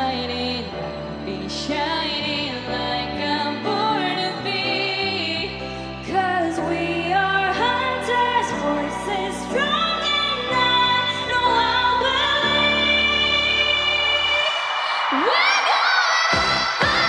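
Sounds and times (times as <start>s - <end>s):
pop song with female vocals: 0.0s - 17.0s.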